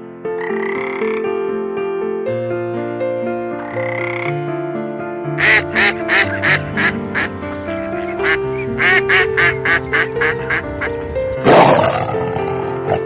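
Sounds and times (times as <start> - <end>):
background music: 0.0 - 13.0
duck quacking: 5.4 - 11.7.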